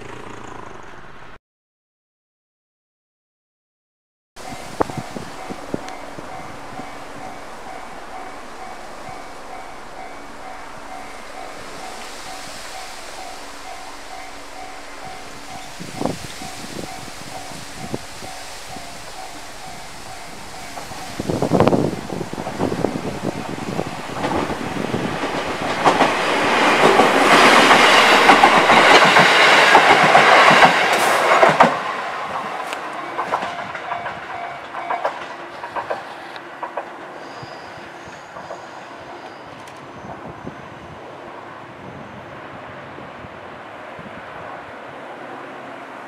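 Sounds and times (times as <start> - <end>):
electric train running past: 0.0 - 1.4, 4.4 - 46.0
wheels clacking over rail joints: 4.4 - 40.2.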